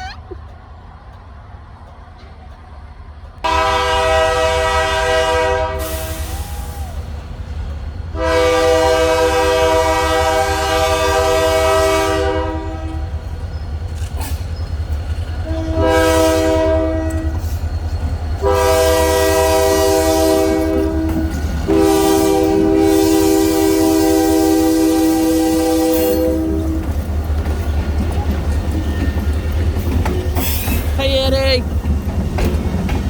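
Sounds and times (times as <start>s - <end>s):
diesel locomotive rumble: 0.0s - 33.0s
locomotive air horn blasts: 3.4s - 6.4s, 8.2s - 13.1s, 15.4s - 17.5s, 18.4s - 26.9s.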